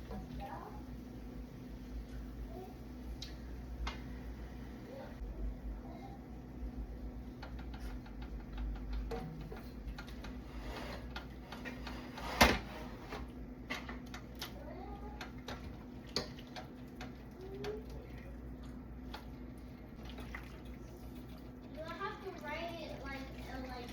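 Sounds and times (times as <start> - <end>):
steady low hum: 0.0 - 23.9
light clicks and taps: 7.4 - 10.4.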